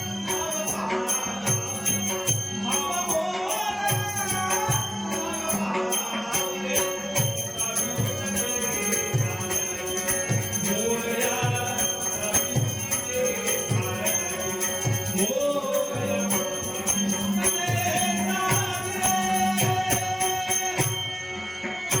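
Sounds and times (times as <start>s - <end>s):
small cymbals ringing: 0.0s - 22.0s
steady drum beat: 7.2s - 21.0s.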